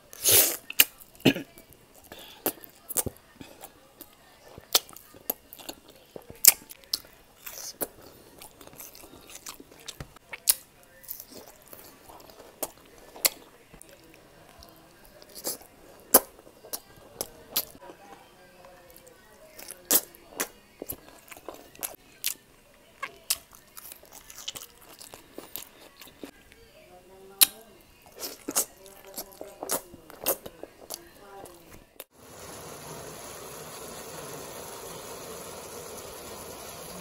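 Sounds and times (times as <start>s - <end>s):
person chewing: 1.9s - 17.8s, 19.0s - 22.4s, 23.0s - 26.3s, 28.0s - 32.1s.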